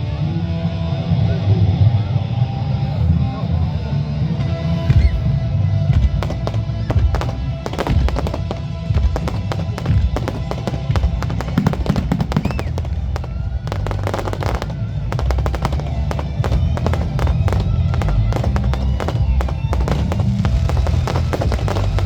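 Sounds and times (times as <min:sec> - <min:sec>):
fireworks bangs and crackles: 0:04.9 - 0:22.0.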